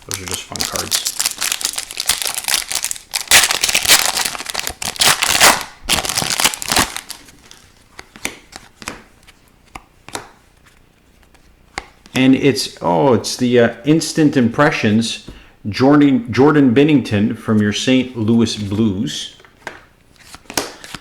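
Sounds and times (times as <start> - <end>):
plastic wrapper crinkling and tearing: 0.0 - 7.7.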